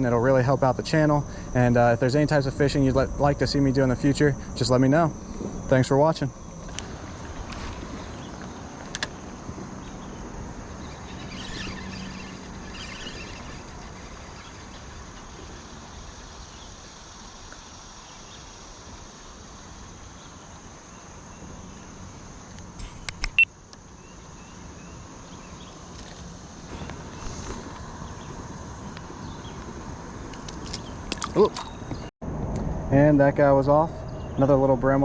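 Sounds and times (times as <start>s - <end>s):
insects trilling: 0.0s - 32.1s
sharp clicks: 22.6s - 23.5s.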